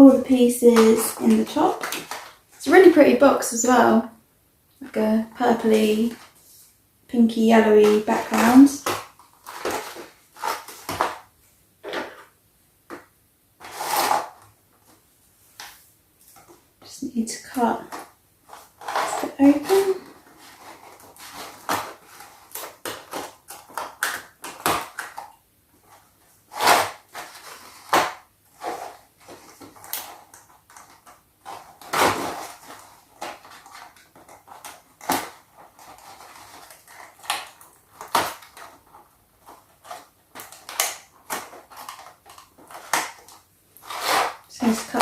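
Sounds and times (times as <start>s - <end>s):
cardboard box being cut open: 13.6s - 14.4s, 18.6s - 23.6s.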